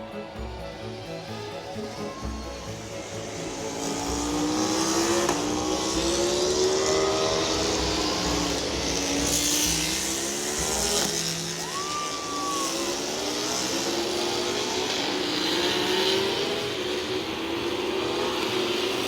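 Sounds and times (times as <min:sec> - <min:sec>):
high-pitched whine: 0:00.0 - 0:17.7
racing motorcycle engines: 0:00.0 - 0:19.0.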